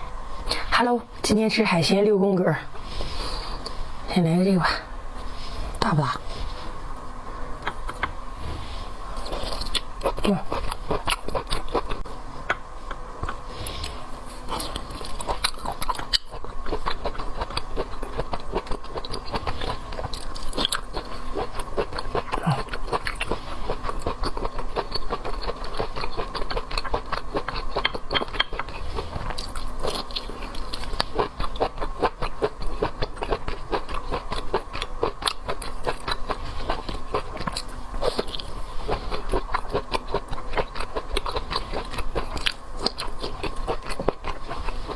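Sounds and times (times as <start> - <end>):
faint steady hum: 0.0 - 44.9
chewing and biting seafood: 9.2 - 44.9.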